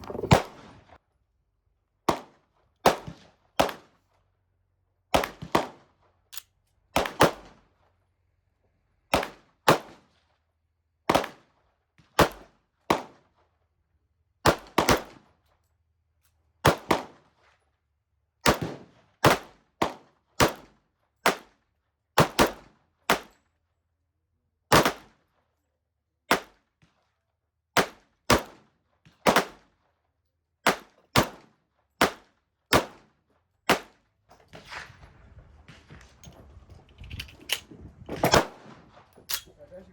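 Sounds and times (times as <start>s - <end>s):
gunshots: 34.5s - 39.6s.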